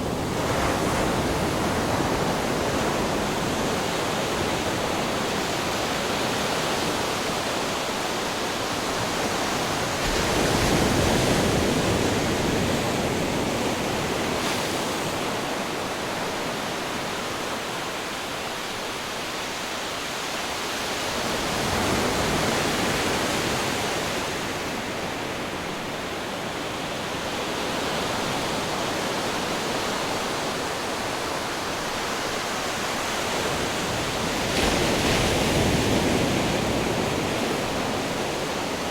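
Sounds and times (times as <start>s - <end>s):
ocean waves breaking on rocks: 20.6s - 38.9s.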